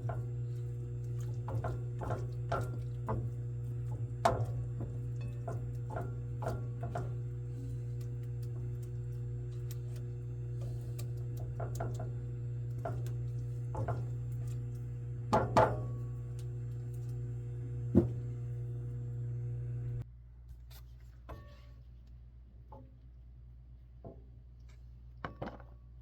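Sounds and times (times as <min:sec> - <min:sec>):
steady low hum: 0:00.0 - 0:20.1
utensil knocking against pan: 0:01.4 - 0:07.3, 0:11.4 - 0:14.3, 0:15.3 - 0:16.0.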